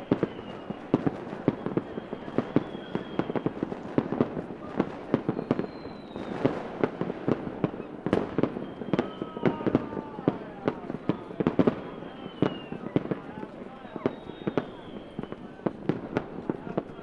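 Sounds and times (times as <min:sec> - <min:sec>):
faint high whistles: 0:00.0 - 0:03.8, 0:05.2 - 0:06.6, 0:07.6 - 0:15.6
fireworks bangs: 0:00.0 - 0:17.0
fireworks crackle: 0:00.0 - 0:17.0.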